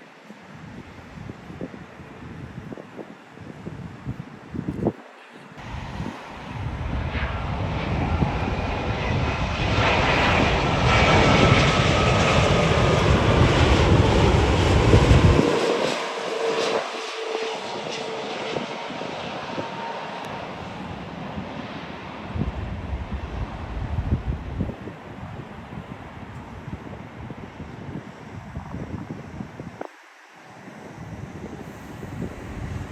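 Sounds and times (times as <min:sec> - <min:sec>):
jet engines passing: 0:05.6 - 0:32.9.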